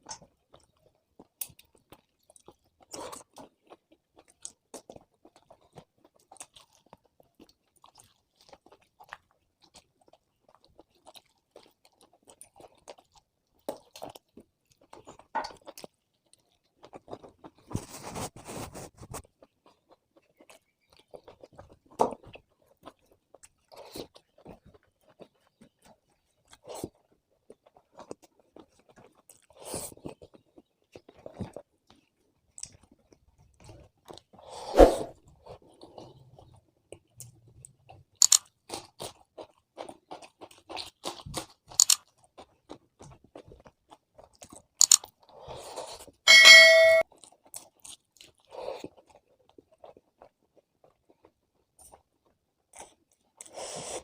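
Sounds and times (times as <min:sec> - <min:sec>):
wet chewing: 0:00.0 - 0:18.1, 0:35.4 - 0:46.2, 0:47.1 - 0:54.0.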